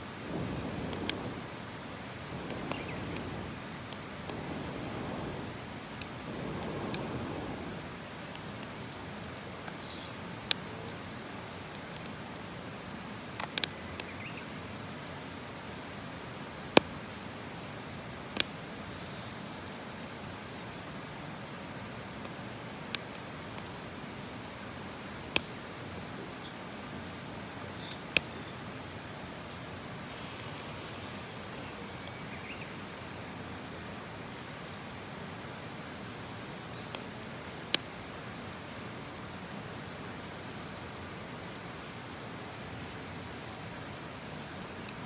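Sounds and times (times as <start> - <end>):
fire popping: 0.0 - 14.1, 18.2 - 20.0, 29.4 - 38.5, 40.4 - 42.0
campfire hissing: 0.0 - 45.0.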